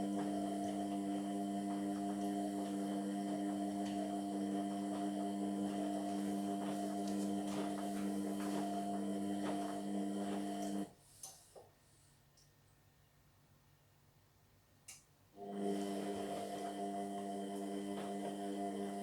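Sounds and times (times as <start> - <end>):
washing machine humming: 0.0 - 10.9, 15.4 - 19.0.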